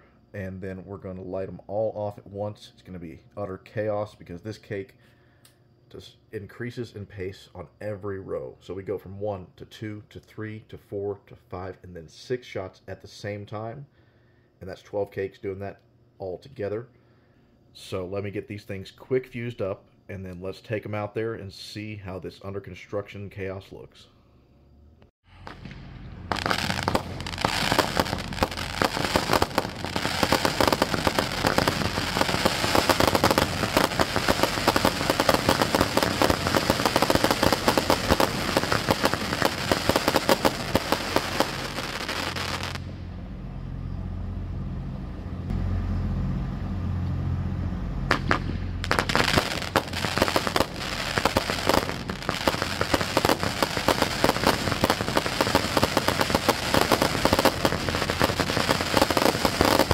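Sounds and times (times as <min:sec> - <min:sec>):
low rumble: 0:25.3 - 0:39.6, 0:40.6 - 0:52.8
firework cakes shooting: 0:25.3 - 0:42.9, 0:48.1 - 0:59.9.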